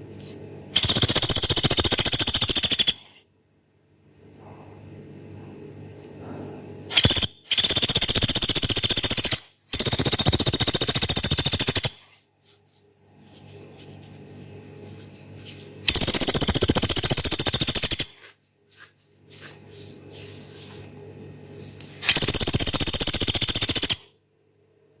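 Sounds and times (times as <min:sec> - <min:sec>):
woodpecker rattling trills: 0:00.8 - 0:03.1, 0:06.9 - 0:12.1, 0:15.9 - 0:18.2, 0:22.1 - 0:24.1.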